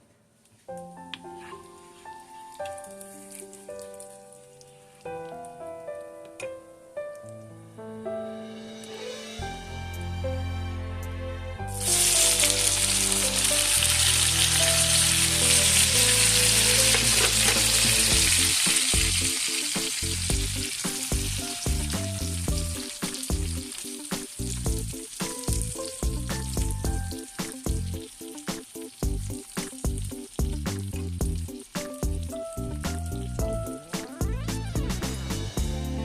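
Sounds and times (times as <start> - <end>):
soft background music: 0.6 - 36.0
food sizzling in oiled pan: 11.8 - 36.0.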